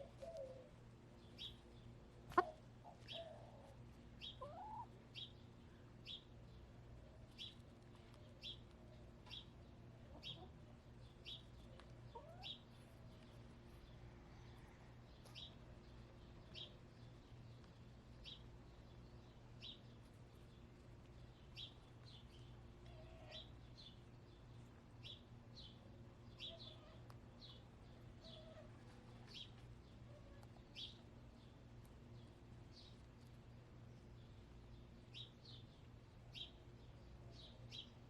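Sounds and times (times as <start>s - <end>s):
steady low hum: 0.0s - 38.0s
small bird chirping: 10.2s - 31.6s.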